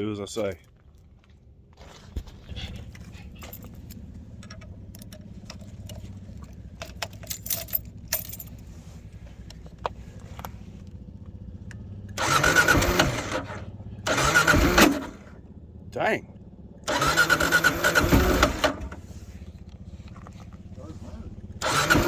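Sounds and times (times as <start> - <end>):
motorcycle engine starting: 1.2 - 22.0
keys and gear rattling: 2.5 - 8.7
steady low hum: 17.7 - 21.7.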